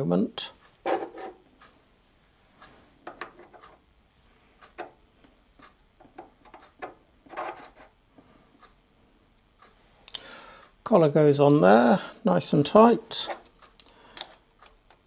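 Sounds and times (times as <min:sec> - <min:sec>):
small metal parts clicking: 0:13.5 - 0:15.0.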